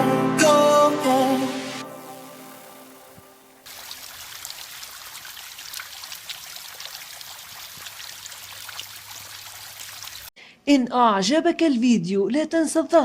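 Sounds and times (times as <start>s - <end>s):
background music: 0.0s - 3.7s
water trickling and splashing: 1.5s - 10.4s.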